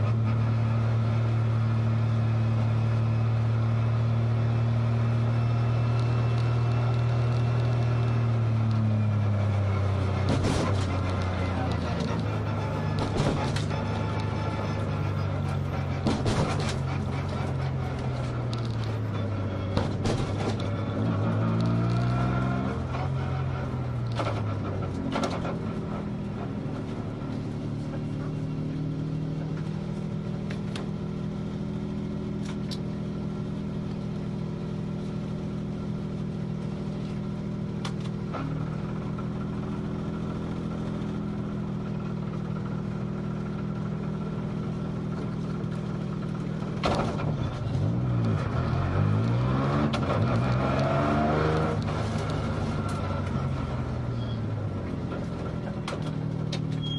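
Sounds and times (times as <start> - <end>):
rally car engine revving: 3.3 - 30.8, 43.2 - 56.9.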